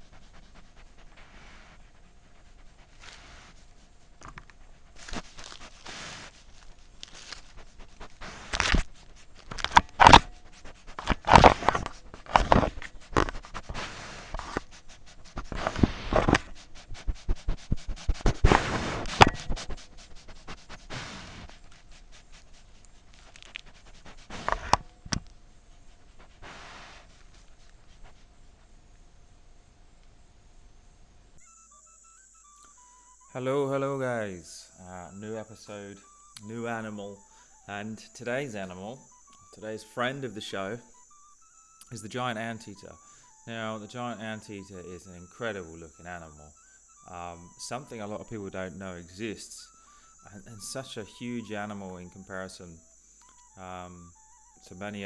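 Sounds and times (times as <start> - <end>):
animal sniffing and snuffling: 0.0 - 29.1, 31.4 - 33.3, 34.6 - 55.0
scraping and crackling: 4.2 - 14.7.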